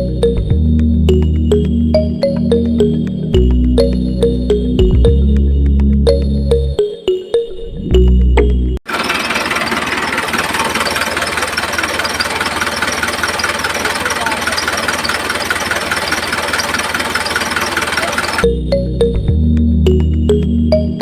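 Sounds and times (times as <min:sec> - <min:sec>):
music: 0:00.0 - 0:08.8, 0:18.4 - 0:21.0
small engine running: 0:08.9 - 0:18.5.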